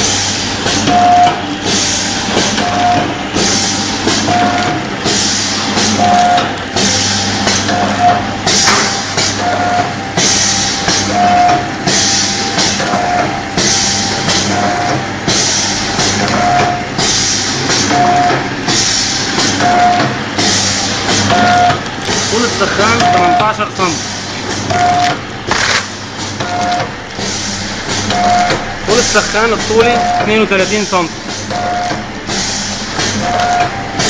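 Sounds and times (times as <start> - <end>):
low machine hum: 0.0 - 34.0
machine hiss: 10.2 - 12.8, 13.6 - 24.4, 27.2 - 33.3.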